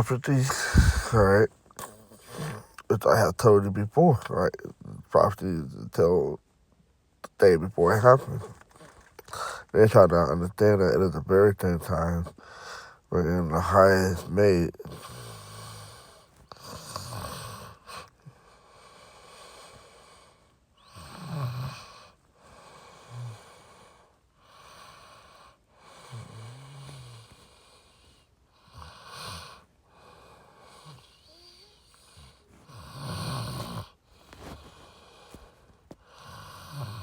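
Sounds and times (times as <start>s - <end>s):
man humming low: 0.0s - 1.4s
man breathing heavily: 0.0s - 1.5s, 12.4s - 13.0s.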